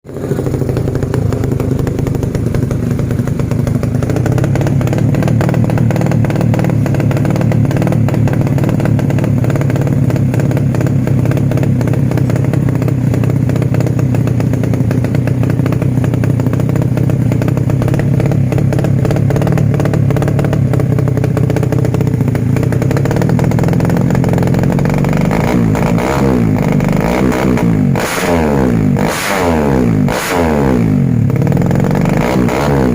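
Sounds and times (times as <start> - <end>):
motorcycle engine idling: 0.0 - 32.9.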